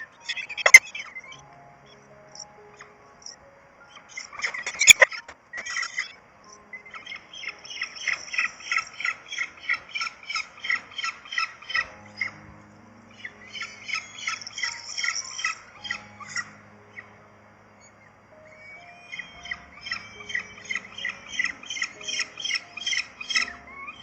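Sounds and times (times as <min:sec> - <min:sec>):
birds squawking: 0:18.5 - 0:24.0.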